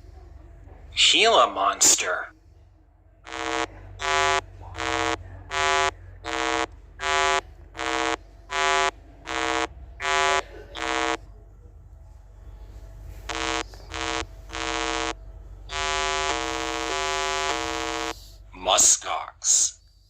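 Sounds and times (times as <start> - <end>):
buzzy electronic beeps: 3.2 - 11.2, 13.3 - 18.2.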